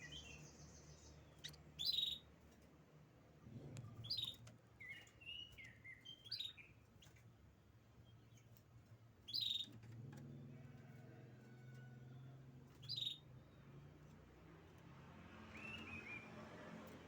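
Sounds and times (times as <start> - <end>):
canary chirping: 0.0 - 2.3, 4.0 - 7.2, 9.2 - 9.8, 12.8 - 13.5.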